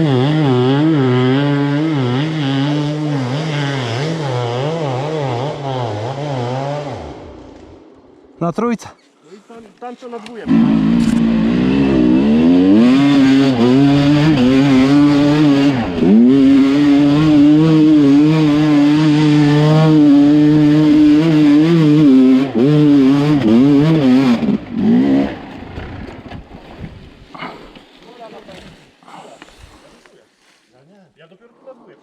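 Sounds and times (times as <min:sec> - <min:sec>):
dirt bike engine revving: 0:00.0 - 0:07.7, 0:10.4 - 0:26.4.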